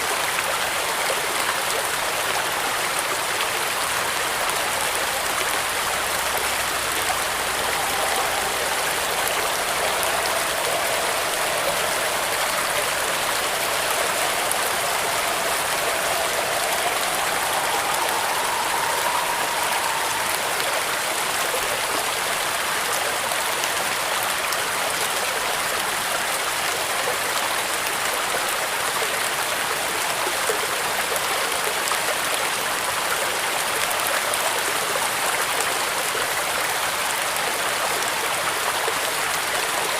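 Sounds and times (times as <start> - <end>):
heavy rain on a metal roof: 0.0 - 39.9
faint wind whistle: 1.0 - 25.8.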